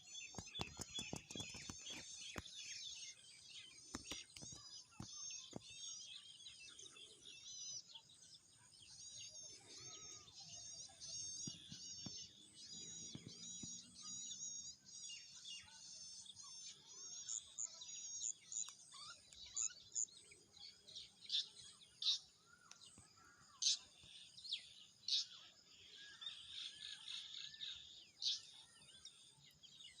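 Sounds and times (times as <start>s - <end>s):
songbirds chirping and singing: 0.0s - 30.0s.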